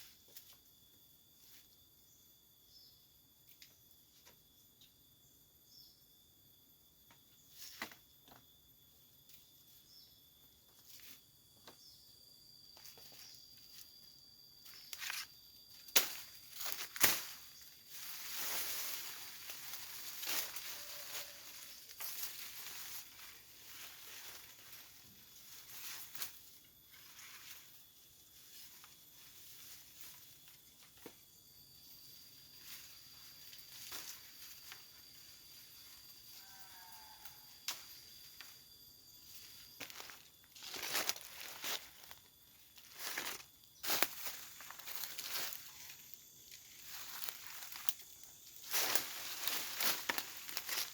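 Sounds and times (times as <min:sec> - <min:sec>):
forest insects buzzing: 0:00.0 - 0:50.9
leaves and branches rustling: 0:14.6 - 0:31.2, 0:32.2 - 0:50.9.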